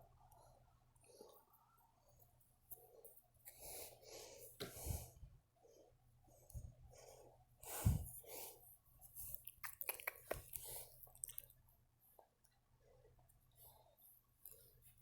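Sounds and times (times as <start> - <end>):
puppy chewing: 9.4 - 11.6.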